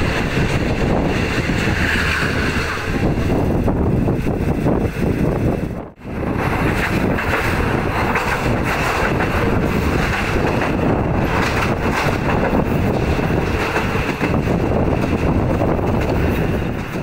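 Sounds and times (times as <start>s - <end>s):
train running rumble: 0.0s - 17.0s
wind rushing over microphone: 0.0s - 17.0s.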